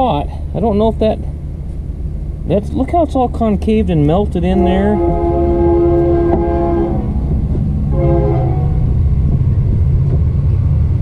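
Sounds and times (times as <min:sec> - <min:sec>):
continuous low rumble: 0:00.0 - 0:11.0
horn blasts: 0:04.4 - 0:09.0.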